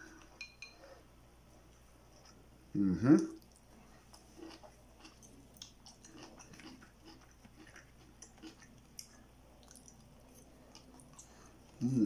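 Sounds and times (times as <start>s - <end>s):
person chewing and swallowing: 3.4s - 11.9s.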